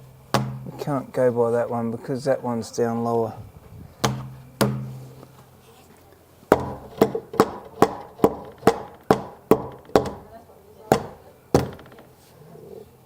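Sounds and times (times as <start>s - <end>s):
hammer blows on timber: 0.3s - 0.8s, 4.0s - 5.2s, 6.5s - 10.3s, 10.9s - 12.2s.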